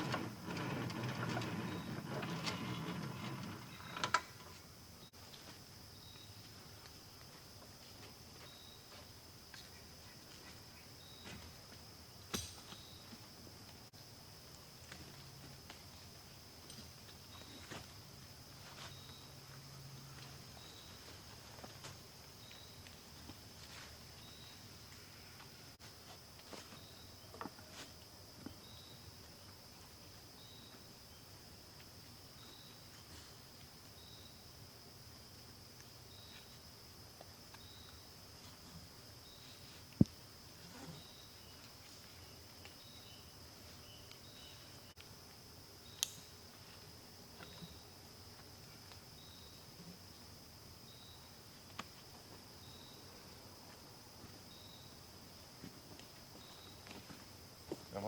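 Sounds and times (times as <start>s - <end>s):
high-pitched insect hum: 0.0s - 58.0s
short high insect chirp: 12.2s - 13.4s, 32.2s - 34.6s, 39.1s - 45.2s, 45.8s - 48.0s, 49.1s - 51.5s, 52.6s - 53.5s, 54.4s - 55.1s.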